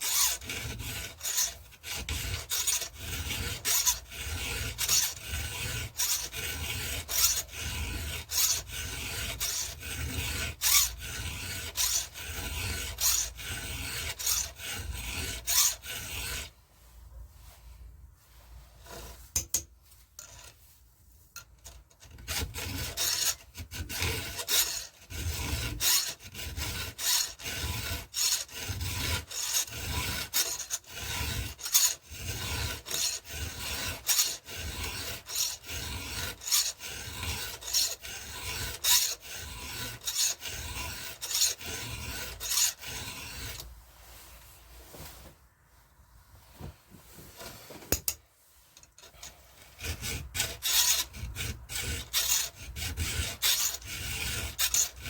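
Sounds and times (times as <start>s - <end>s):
hand file rasping on chain: 0.0s - 16.5s, 18.8s - 20.6s, 21.4s - 43.7s, 47.9s - 55.0s.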